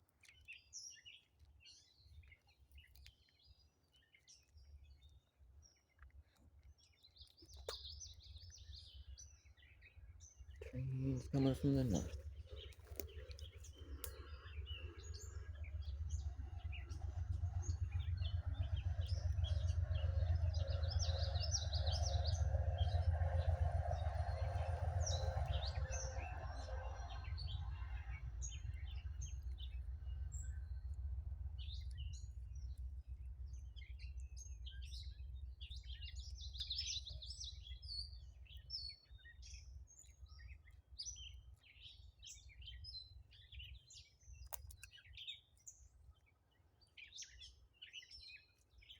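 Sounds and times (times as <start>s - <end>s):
small birds chirping: 0.0s - 31.0s, 31.6s - 48.9s
train rumbling past: 15.0s - 34.7s.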